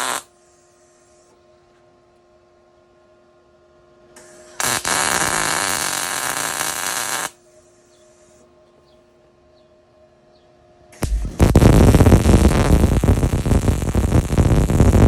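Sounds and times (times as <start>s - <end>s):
welder arc crackling: 0.0s - 0.3s, 4.2s - 7.4s, 11.0s - 15.0s
faint hiss: 0.0s - 1.3s, 11.0s - 15.0s
steady low hum: 0.0s - 15.0s.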